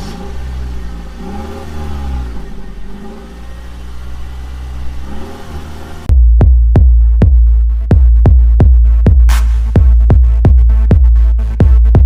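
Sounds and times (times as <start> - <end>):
truck engine revving: 0.0 - 6.1.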